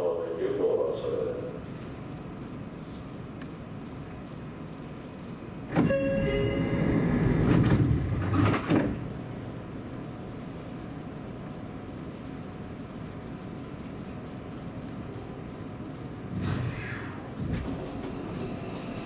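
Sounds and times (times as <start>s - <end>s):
train running on track: 5.7s - 10.0s, 17.3s - 19.0s
ringing tones: 5.8s - 7.4s.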